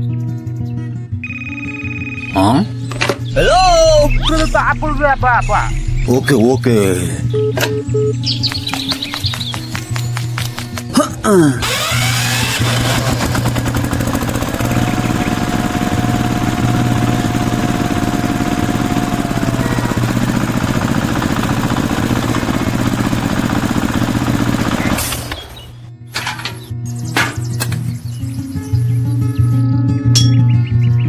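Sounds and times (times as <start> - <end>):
falling whine: 3.0 - 7.3
small engine running: 11.6 - 25.9.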